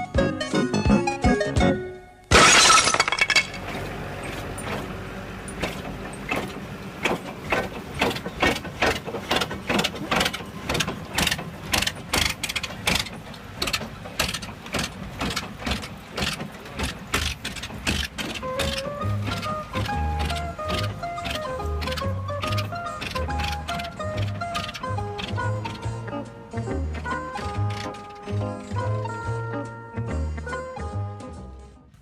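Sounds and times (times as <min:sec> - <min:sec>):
mechanical clicking and knocking: 0:03.3 - 0:28.8.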